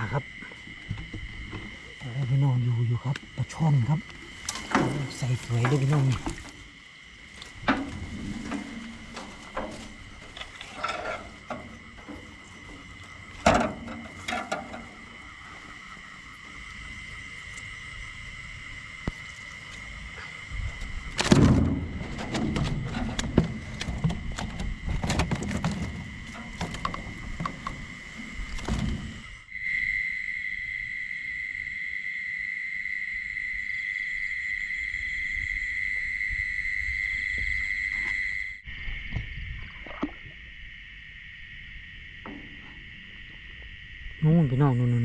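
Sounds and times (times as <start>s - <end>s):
crickets chirring: 0.0s - 45.0s
knocks and splashy handling noises: 3.0s - 17.7s, 20.8s - 29.4s.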